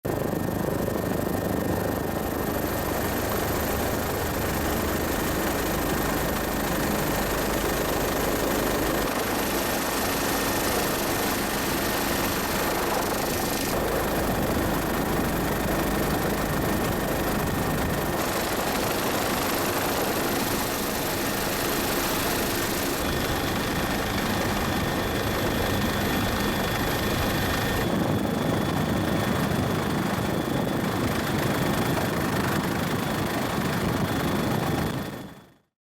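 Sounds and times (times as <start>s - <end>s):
engine drone: 2.5s - 28.7s.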